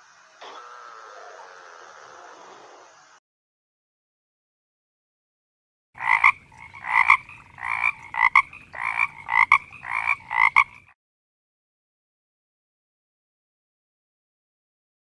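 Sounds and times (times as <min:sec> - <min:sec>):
frog croaking: 0:00.3 - 0:02.9, 0:06.0 - 0:11.0.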